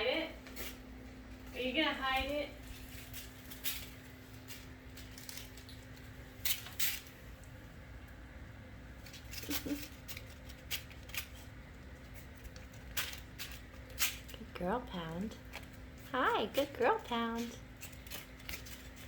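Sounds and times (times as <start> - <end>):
kitten playing with toy: 9.0 - 14.5.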